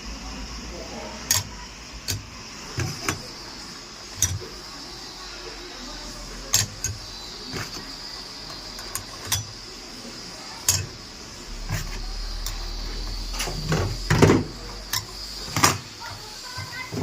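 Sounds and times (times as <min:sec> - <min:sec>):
tools knocking and clinking: 0:04.2 - 0:04.5, 0:08.7 - 0:09.6, 0:10.7 - 0:11.0.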